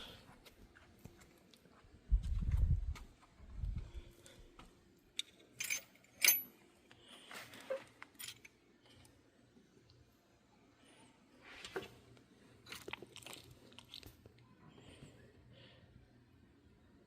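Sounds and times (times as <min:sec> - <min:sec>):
metal parts clinking: 0:05.2 - 0:06.5, 0:08.0 - 0:08.6.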